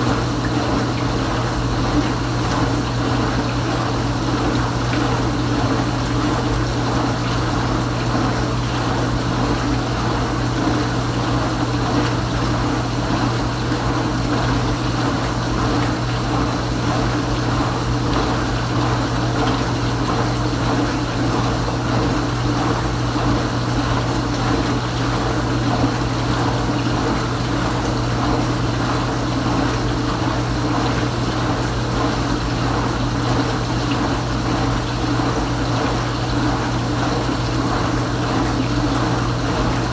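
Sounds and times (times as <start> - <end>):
dishwasher pump hum: 0.0 - 39.9
water spraying inside dishwasher: 0.0 - 39.9.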